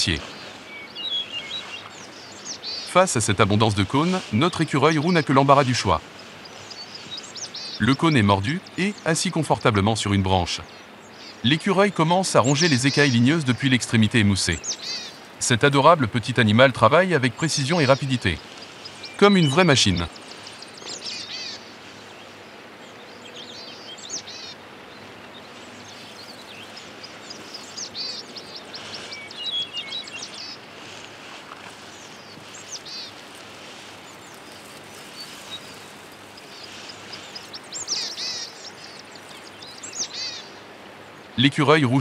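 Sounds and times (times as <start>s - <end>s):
steady outdoor hiss: 0.0s - 42.0s
high bird chirps: 23.0s - 30.6s, 34.1s - 40.6s.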